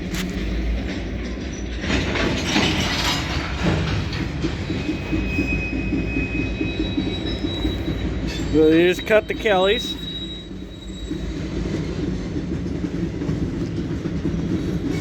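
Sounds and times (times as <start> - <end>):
freight cars rumbling and clattering: 0.0 - 15.0
high wheel squeal: 1.5 - 12.5.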